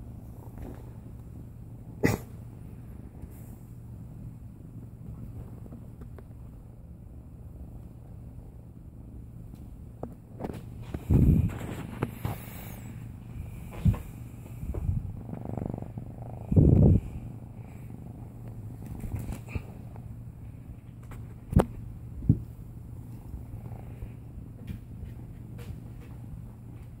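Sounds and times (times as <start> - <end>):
kitten purring: 10.2 - 26.7.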